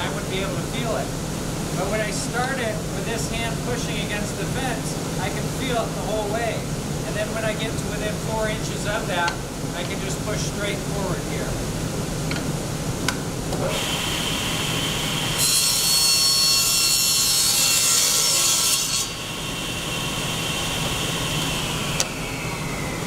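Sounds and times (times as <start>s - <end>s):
table saw blade whine: 13.6s - 23.0s.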